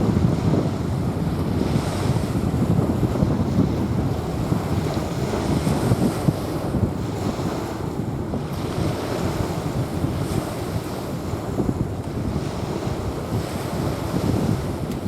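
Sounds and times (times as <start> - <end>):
waves washing onto beach: 0.0 - 15.0
wind rumbling on microphone: 0.0 - 15.0.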